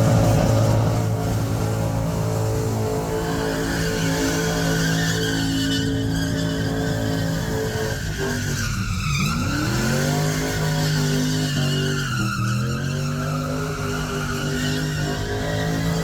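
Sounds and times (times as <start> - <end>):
car engine revving high: 0.0 - 8.6
tyres spinning and squealing: 0.0 - 16.0.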